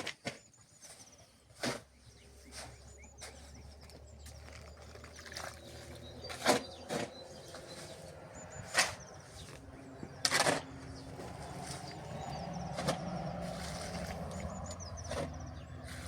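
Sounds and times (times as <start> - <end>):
small birds chirping: 0.0 - 16.0
sharp knocks or scrapes: 10.2 - 10.9.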